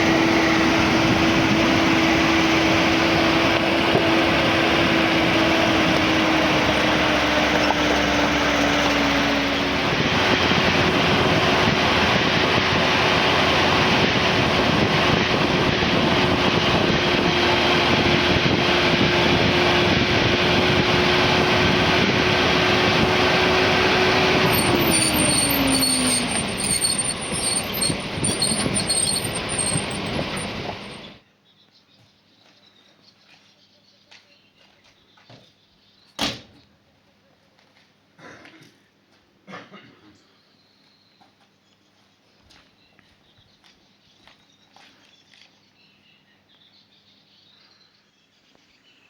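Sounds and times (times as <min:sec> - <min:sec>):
road and wind noise: 0:00.0 - 0:31.2
vehicle engine note: 0:00.0 - 0:31.2.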